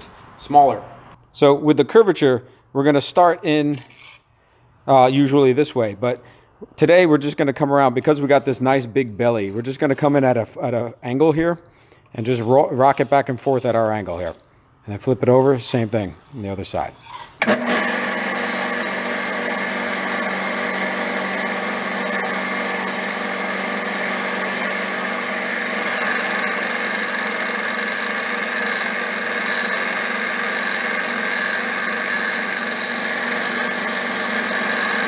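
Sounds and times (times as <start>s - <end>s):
belt grinder sharpening knife: 17.0s - 35.0s.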